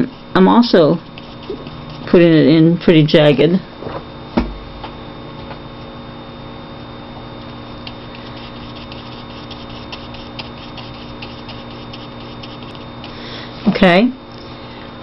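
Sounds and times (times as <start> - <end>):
electrical hum: 0.0 - 15.0
paintbrush dabbing on paper: 0.1 - 2.2, 8.1 - 12.8.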